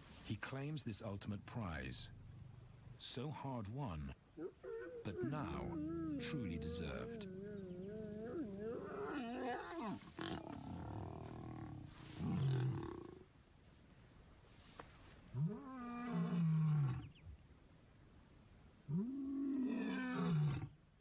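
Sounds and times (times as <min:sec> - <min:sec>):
lion calling: 0:04.4 - 0:13.2.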